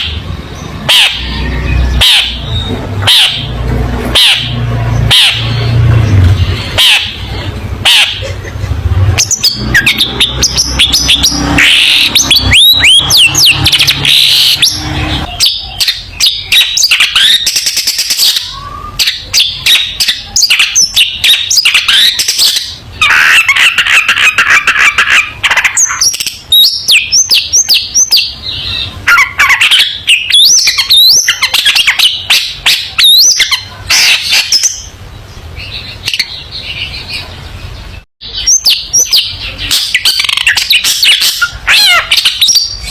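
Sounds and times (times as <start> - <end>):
bird singing: 0.0 - 42.9.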